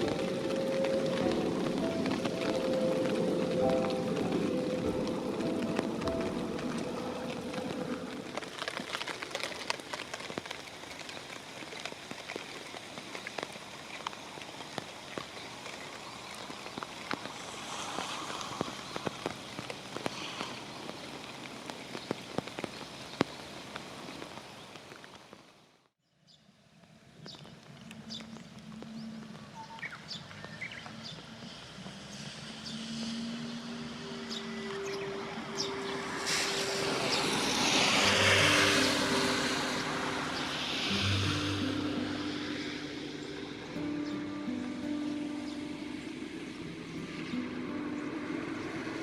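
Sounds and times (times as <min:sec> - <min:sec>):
soft background music: 0:00.0 - 0:09.4, 0:32.0 - 0:49.0
rain falling: 0:00.0 - 0:25.9, 0:26.7 - 0:49.0
vehicle passing by: 0:31.1 - 0:44.4.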